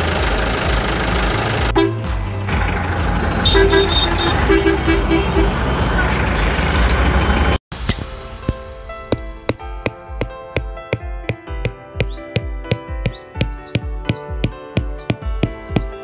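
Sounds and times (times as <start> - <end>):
vehicle engine running: 0.0 - 7.6
short horn toots: 3.4 - 5.6.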